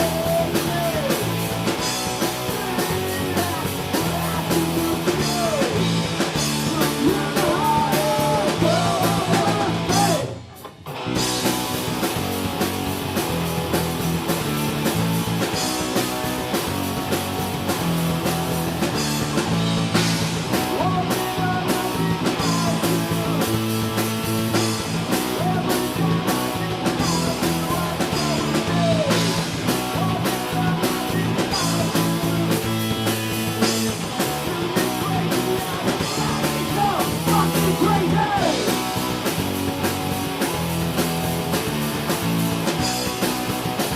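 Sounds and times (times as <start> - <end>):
person singing: 0.0 - 10.6, 20.5 - 23.8, 25.1 - 39.4
punk rock band playing: 0.0 - 43.9.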